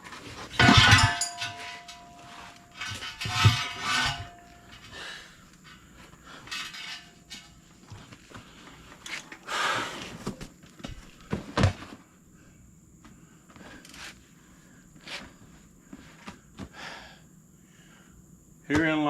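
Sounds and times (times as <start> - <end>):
scraping rustle: 0.0 - 10.4, 15.0 - 16.2.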